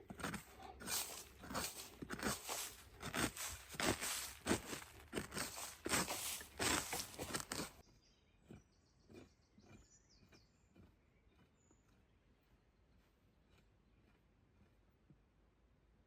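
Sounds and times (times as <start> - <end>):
dry branches crunching: 0.2 - 7.8.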